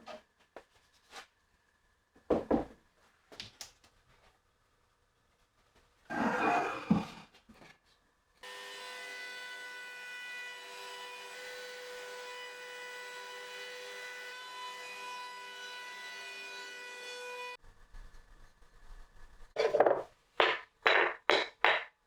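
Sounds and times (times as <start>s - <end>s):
sharp wooden knock: 19.8s - 21.9s.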